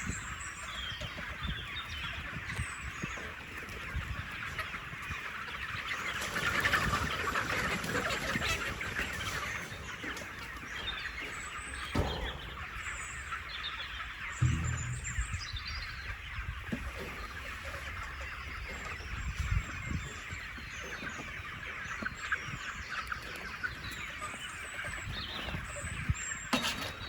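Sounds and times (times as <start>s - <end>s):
chickens clucking: 0.0s - 15.4s, 16.2s - 27.0s
single brief knock: 12.0s - 12.9s, 14.4s - 15.4s.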